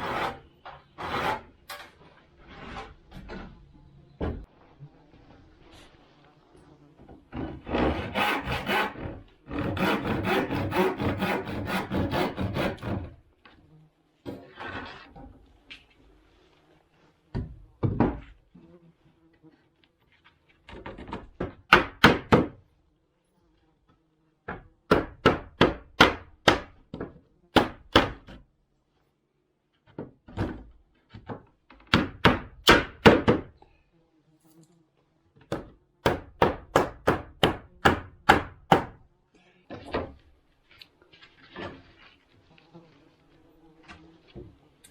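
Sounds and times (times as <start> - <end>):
continuous rasping noise: 0.0 - 22.6
hammer driving nails into wood: 21.4 - 22.6, 24.9 - 28.4, 31.2 - 33.5, 35.5 - 39.0.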